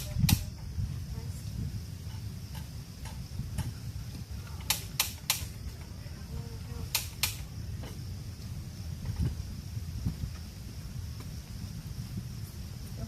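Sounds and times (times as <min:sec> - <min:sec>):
sharp clicks or snaps: 0:00.0 - 0:00.5, 0:04.6 - 0:05.6, 0:06.9 - 0:07.5
wind rumble on microphone: 0:00.0 - 0:13.0.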